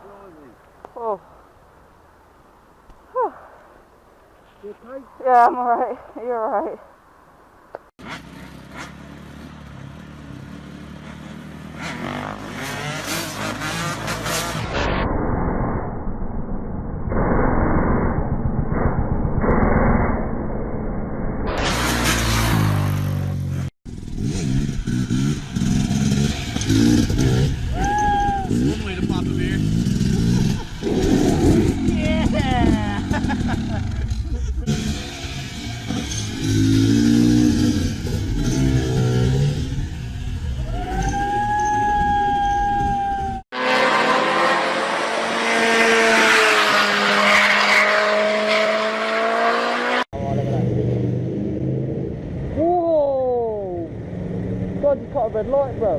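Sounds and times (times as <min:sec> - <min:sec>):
engine revving: 0:08.0 - 0:15.0, 0:21.5 - 0:41.3, 0:43.5 - 0:52.6
tyres skidding and squealing: 0:21.5 - 0:23.7, 0:24.6 - 0:50.7
motorcycle engine running: 0:22.6 - 0:40.6.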